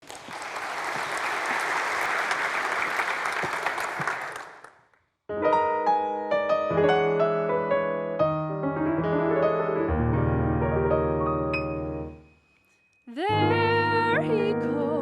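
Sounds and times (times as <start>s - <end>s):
audience applauding: 0.0s - 4.9s
piano playing chords: 5.3s - 12.4s, 13.2s - 15.0s.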